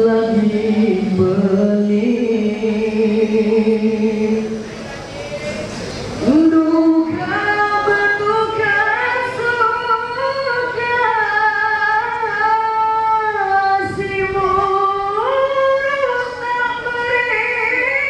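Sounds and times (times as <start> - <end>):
group singing in harmony: 0.0 - 4.6.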